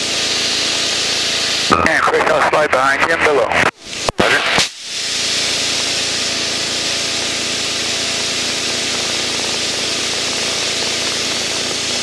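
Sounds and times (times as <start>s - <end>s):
propeller aircraft cockpit engine noise: 0.0s - 12.0s.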